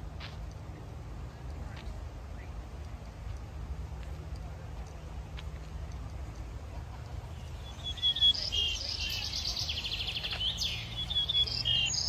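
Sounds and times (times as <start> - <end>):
birds chirping and trilling: 7.3 - 12.0.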